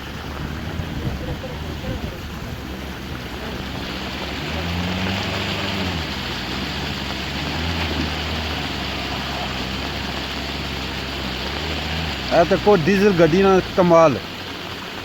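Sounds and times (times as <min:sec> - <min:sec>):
rain hissing: 0:00.0 - 0:15.0
running water: 0:00.0 - 0:15.0
vehicle engine revving: 0:00.0 - 0:15.0.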